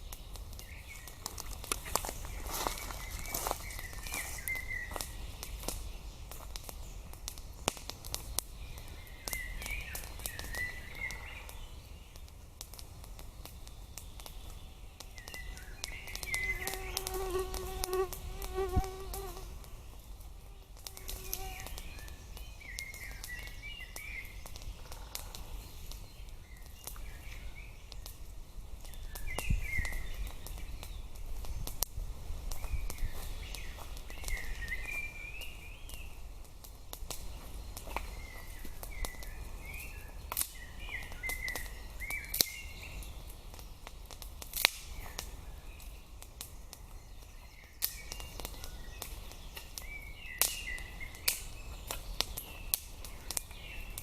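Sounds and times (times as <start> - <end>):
sharp crackles or snaps: 0.0 - 54.0
small birds chirping: 0.0 - 54.0
flying insect buzzing: 16.2 - 19.5.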